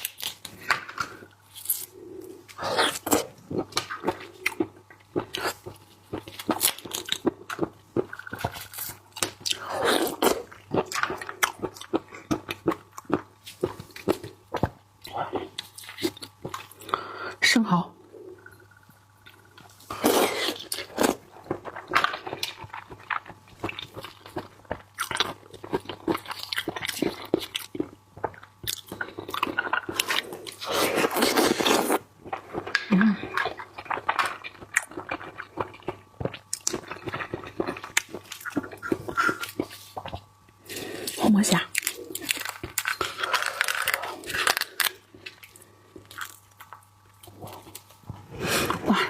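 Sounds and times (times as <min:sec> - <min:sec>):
person chewing wetly: 0:00.0 - 0:16.9, 0:18.4 - 0:48.0
wet chewing and smacking: 0:20.4 - 0:41.1.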